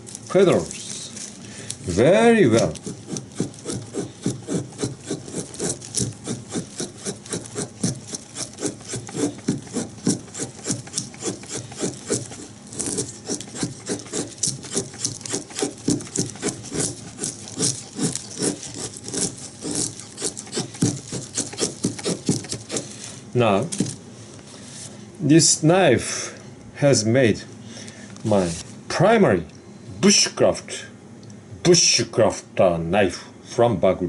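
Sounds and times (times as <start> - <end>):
knife shaving wood: 0.0 - 24.0.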